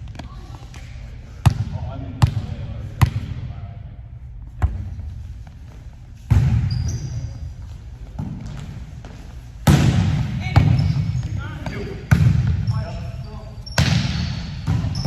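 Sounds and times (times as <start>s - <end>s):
volleyball bouncing on gym floor: 0.1s - 3.5s, 4.6s - 5.2s, 6.3s - 7.4s, 8.1s - 13.0s, 13.6s - 15.0s
loud ball hit with echo: 9.6s - 10.8s.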